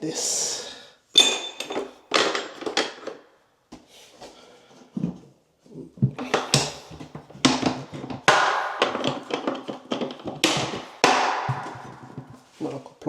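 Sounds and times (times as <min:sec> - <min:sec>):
hand tools clattering: 0:01.2 - 0:03.2, 0:06.2 - 0:12.6.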